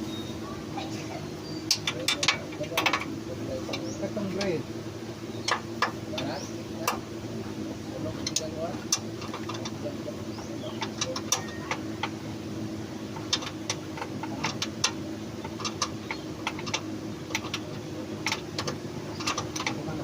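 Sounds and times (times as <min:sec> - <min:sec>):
steady low hum: 0:00.0 - 0:20.0
hand tools tapping on metal: 0:01.7 - 0:04.6, 0:05.4 - 0:07.1, 0:08.0 - 0:12.2, 0:13.1 - 0:20.0.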